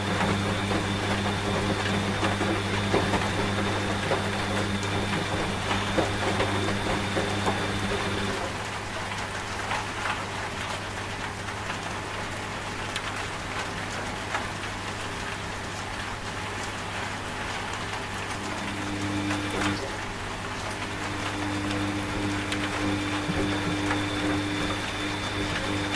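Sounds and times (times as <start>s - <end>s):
washing machine motor hum: 0.0s - 9.2s, 16.7s - 25.9s
steady rain: 7.4s - 25.9s.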